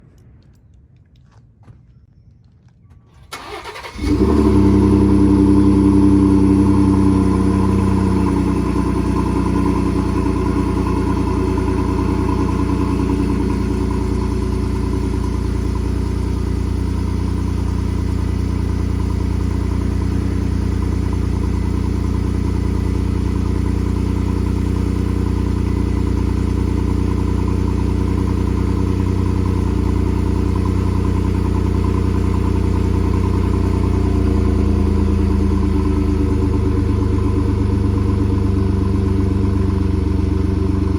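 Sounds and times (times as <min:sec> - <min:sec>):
engine idling through exhaust: 0:03.4 - 0:40.9.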